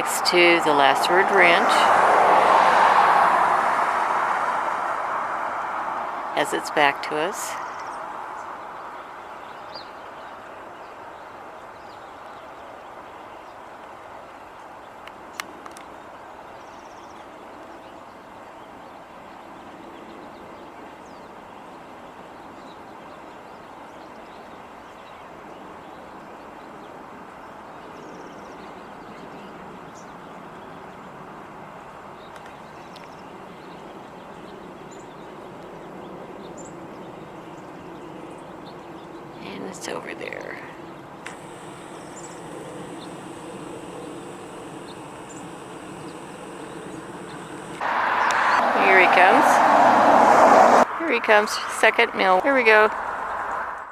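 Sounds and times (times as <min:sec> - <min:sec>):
outdoor background rush: 0:00.0 - 0:53.9
small birds chirping: 0:32.2 - 0:53.4.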